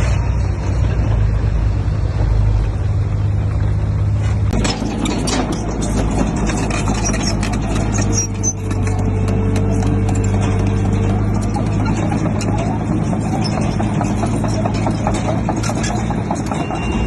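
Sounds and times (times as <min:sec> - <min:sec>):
bulldozer diesel engine running: 0:00.0 - 0:17.0
clanks and rattles over rock: 0:04.2 - 0:17.0.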